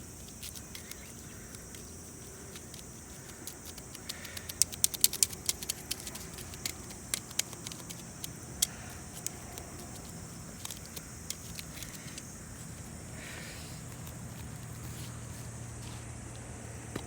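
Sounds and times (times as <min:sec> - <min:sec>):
wood fire crackling and popping: 0:00.4 - 0:12.2.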